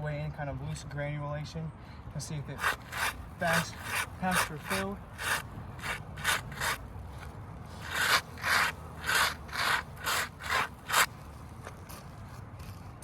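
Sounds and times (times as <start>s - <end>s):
gloved hand brushing roof shingles: 2.6s - 12.0s.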